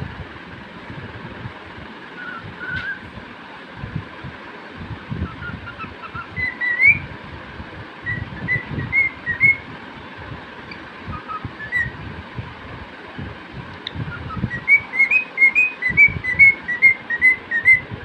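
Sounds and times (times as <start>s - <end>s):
low rumbling noise: 0.0s - 18.0s
cockatiel whistling: 2.2s - 3.0s, 5.2s - 7.1s, 8.0s - 9.6s, 11.1s - 12.0s, 14.1s - 17.9s.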